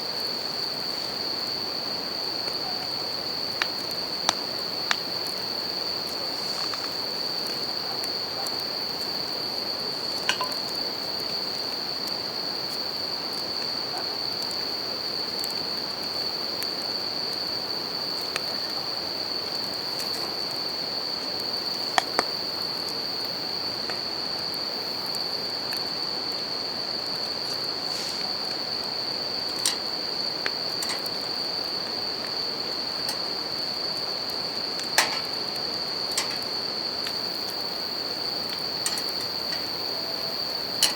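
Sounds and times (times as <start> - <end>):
crickets chirping chorus: 0.0 - 40.9
campfire crackling: 0.1 - 40.9.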